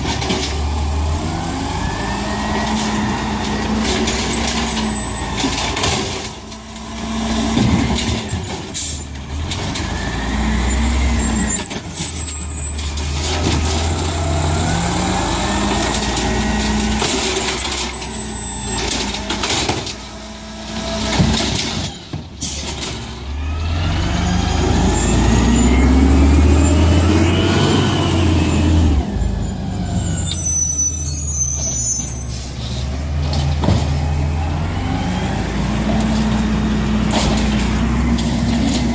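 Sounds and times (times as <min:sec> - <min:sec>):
truck engines revving: 0:00.0 - 0:38.9
high-pitched brake squeals: 0:04.3 - 0:05.6, 0:10.1 - 0:13.2, 0:17.7 - 0:19.1, 0:24.7 - 0:32.8.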